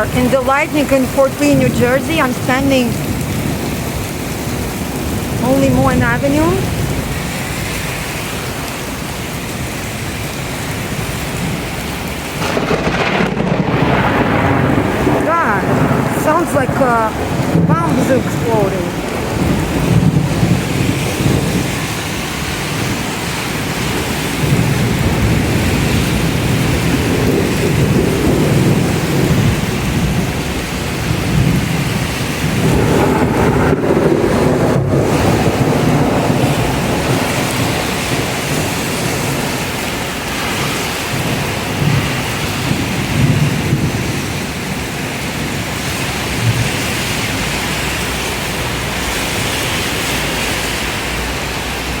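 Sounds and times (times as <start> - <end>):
heavy rain pouring: 0.0 - 52.0
rolling thunder: 1.0 - 7.6, 10.8 - 48.0.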